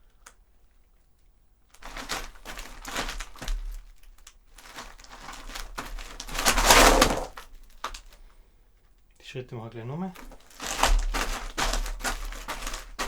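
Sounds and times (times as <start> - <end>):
gravel crunching and scraping: 1.8 - 8.0, 10.2 - 13.0.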